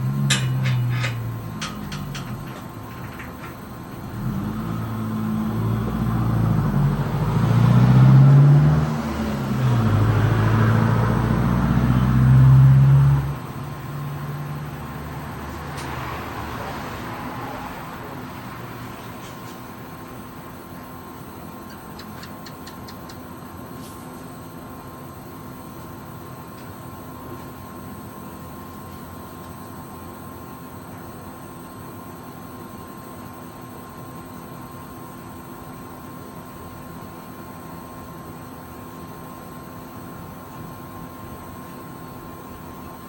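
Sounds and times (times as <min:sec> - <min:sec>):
steady hum and hiss: 0:00.0 - 0:07.4.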